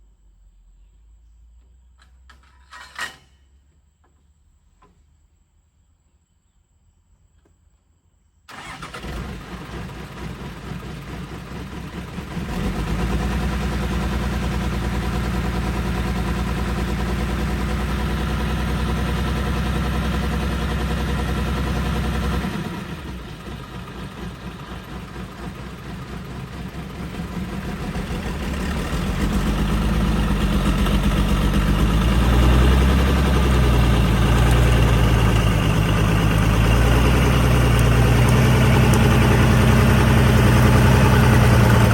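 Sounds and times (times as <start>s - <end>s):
small truck engine running: 8.5s - 41.9s.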